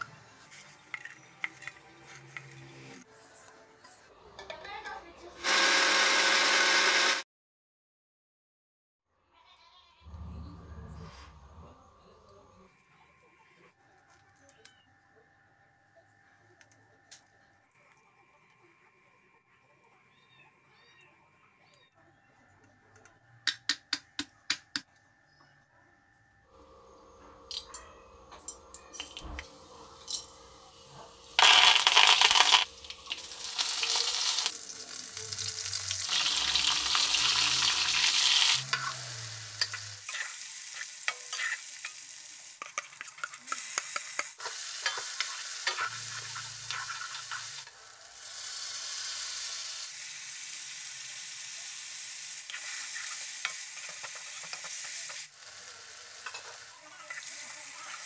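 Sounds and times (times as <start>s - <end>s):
vegetables sizzling in hot oil: 29.0s - 58.0s.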